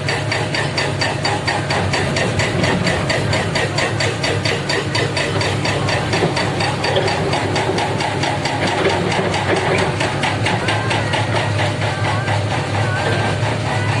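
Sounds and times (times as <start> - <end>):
heavy diesel engine clattering: 0.0 - 14.0.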